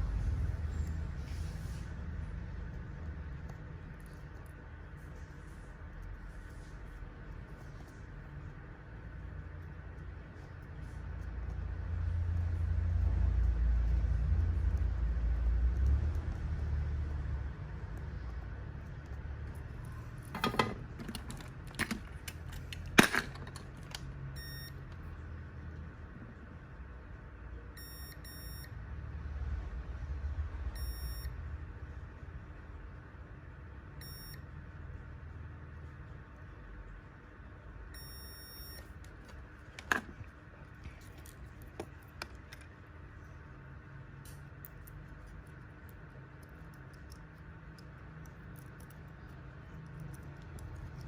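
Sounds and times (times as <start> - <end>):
low steady hum: 0.0 - 51.0
small tools clicking and knocking: 20.2 - 24.1
short electronic beep: 24.4 - 24.7, 30.8 - 31.3.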